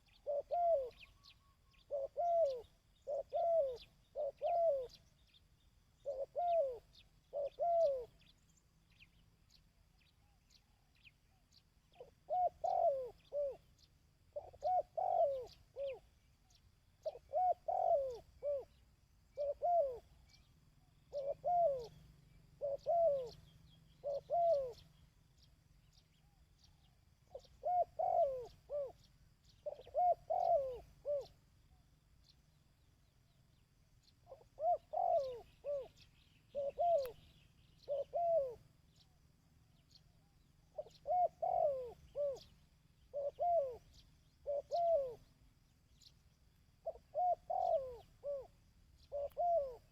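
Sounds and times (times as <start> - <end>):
dove cooing: 0.0 - 5.4, 6.0 - 8.3, 11.9 - 25.0, 27.2 - 31.5, 33.5 - 39.0, 40.6 - 46.1, 46.8 - 49.9.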